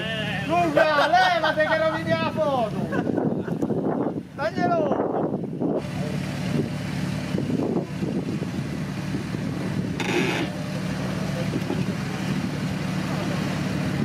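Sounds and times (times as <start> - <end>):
engine running: 5.2 - 14.0.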